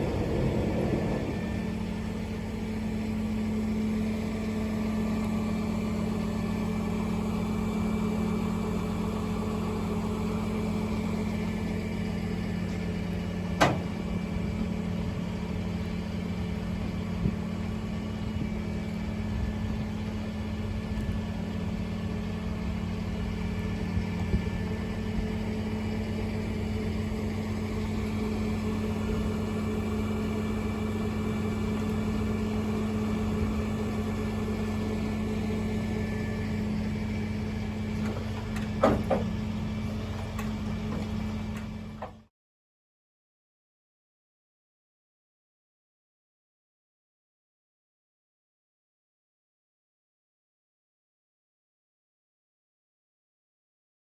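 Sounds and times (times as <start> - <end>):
engine idling: 0.0 - 42.3.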